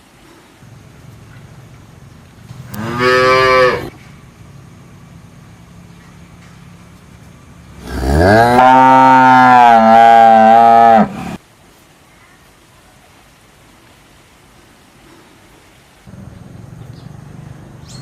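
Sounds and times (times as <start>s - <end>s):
cow mooing: 2.7s - 4.0s, 7.8s - 11.4s.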